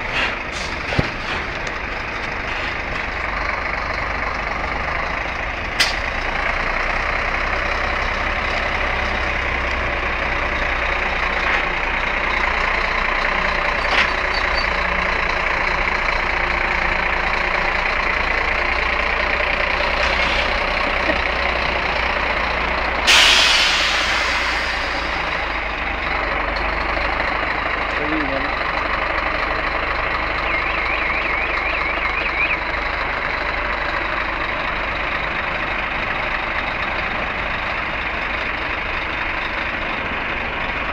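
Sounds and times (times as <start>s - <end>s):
truck engine running: 0.0s - 40.9s
compressed air hiss: 23.1s - 25.0s.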